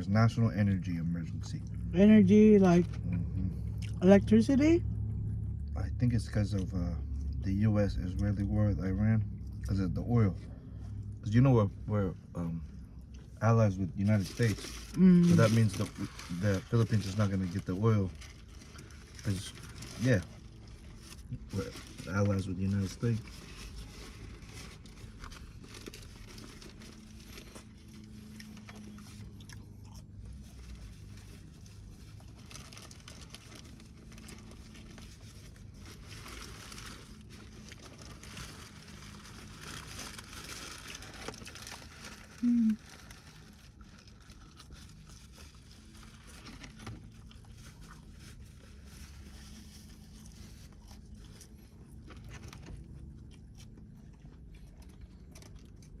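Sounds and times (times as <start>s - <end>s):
person chewing food: 3.1s - 4.0s, 23.8s - 35.8s, 41.3s - 56.0s.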